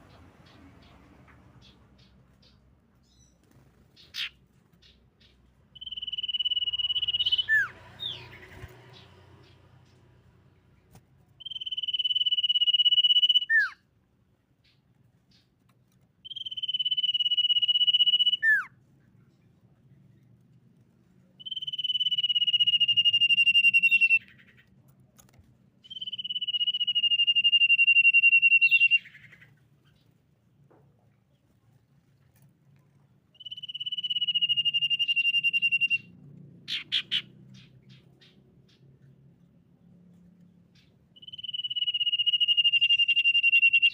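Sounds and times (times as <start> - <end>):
bird whistling call: 5.8 - 8.3, 11.4 - 13.8, 16.2 - 18.7, 21.4 - 24.5, 25.8 - 29.4, 33.4 - 36.1, 41.2 - 43.9.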